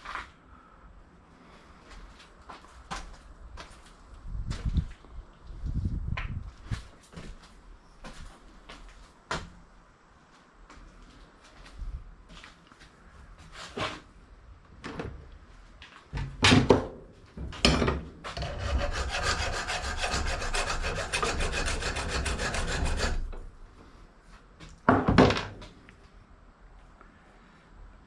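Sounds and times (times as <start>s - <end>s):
rasping scrape: 18.4s - 23.5s.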